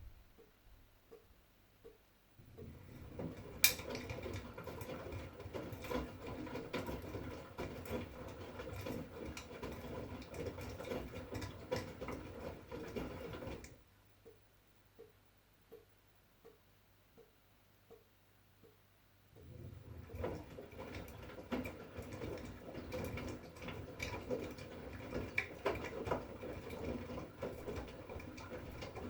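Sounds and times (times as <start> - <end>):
washing machine drum tumbling: 2.4 - 13.7, 19.4 - 29.0.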